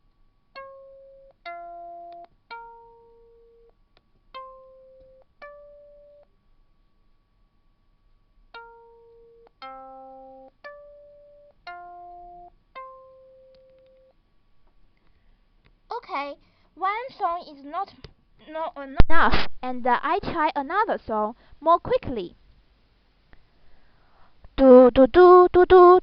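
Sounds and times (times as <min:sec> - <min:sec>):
synthesized guitar melody: 0:00.6 - 0:03.7, 0:04.4 - 0:06.3, 0:08.6 - 0:14.2.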